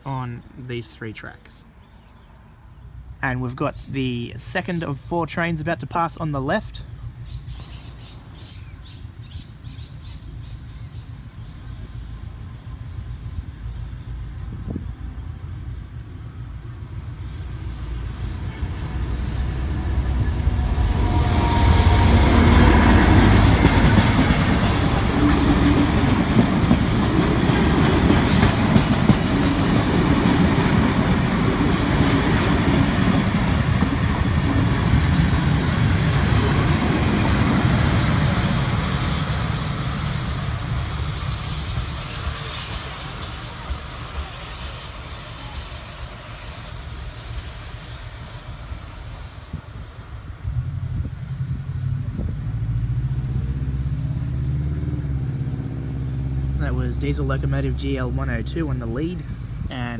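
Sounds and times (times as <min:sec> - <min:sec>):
diesel locomotive rumble: 0:02.7 - 0:59.9
steam locomotive hiss: 0:14.5 - 0:54.6
wheels clicking over rail joints: 0:23.2 - 0:37.4.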